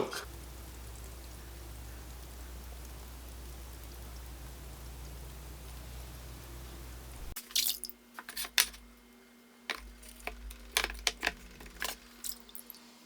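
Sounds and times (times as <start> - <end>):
water dripping: 11.8 - 12.8.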